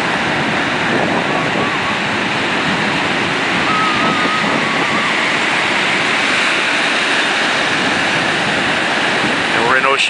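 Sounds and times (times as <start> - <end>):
ocean surf breaking on a beach: 0.0 - 10.0
faint wavering high tone: 3.6 - 5.2.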